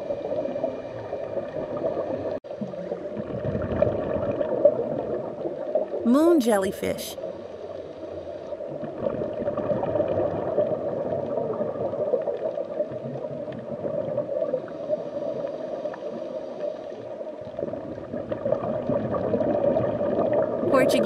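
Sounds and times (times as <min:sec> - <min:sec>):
underwater watery rumble: 0:00.0 - 0:06.0, 0:07.2 - 0:20.7
water gurgling: 0:00.0 - 0:07.2.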